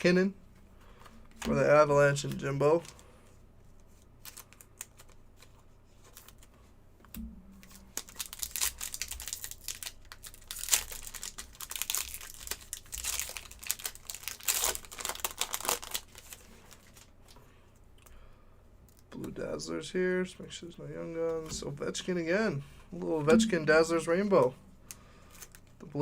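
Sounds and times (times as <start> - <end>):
card pack wrapper crinkling: 4.2 - 6.5, 7.6 - 17.1, 25.2 - 25.7.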